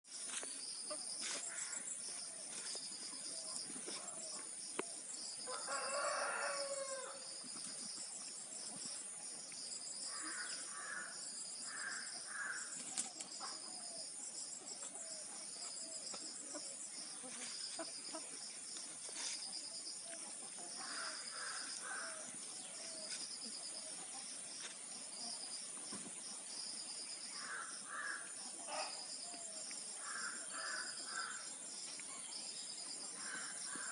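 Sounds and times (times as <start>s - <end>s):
insects chorus: 0.1s - 33.9s
rooster crowing: 5.5s - 7.2s.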